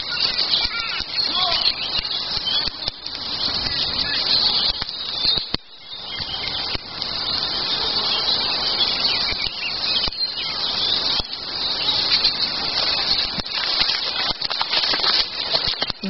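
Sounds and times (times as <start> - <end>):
birds singing in chorus: 0.0 - 16.0
faint clicks: 0.3 - 7.2.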